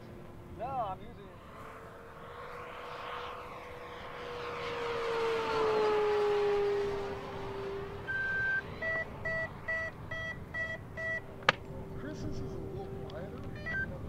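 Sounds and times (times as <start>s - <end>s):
model plane motor whine: 1.4s - 11.5s
electronic beeps: 8.1s - 11.2s, 13.5s - 14.0s.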